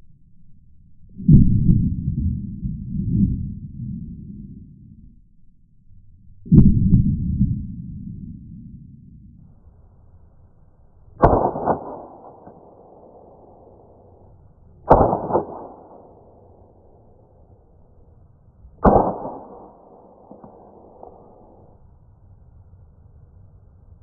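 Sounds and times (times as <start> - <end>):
airsoft pistol shots: 11.2 - 14.2, 14.9 - 17.1, 18.8 - 21.7.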